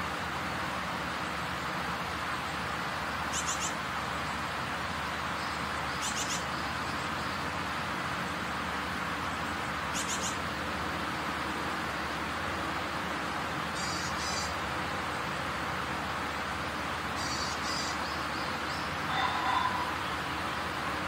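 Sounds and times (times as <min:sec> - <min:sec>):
steady hiss: 0:00.0 - 0:19.1
high bird chirps: 0:09.9 - 0:10.4, 0:13.8 - 0:14.6, 0:17.2 - 0:19.9.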